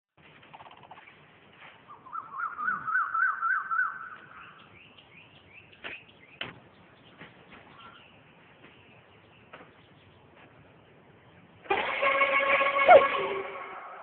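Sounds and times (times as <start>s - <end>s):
bird warbling trill: 1.9s - 4.6s, 11.8s - 14.0s
short rising bird chirps: 1.9s - 4.7s.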